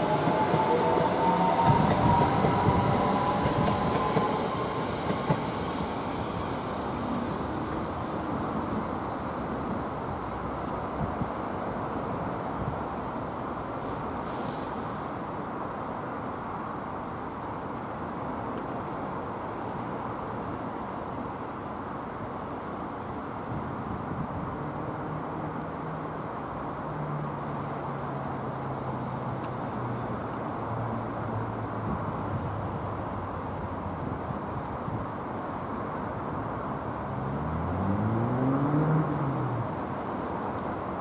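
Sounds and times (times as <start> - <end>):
train rumble: 0.0 - 11.2.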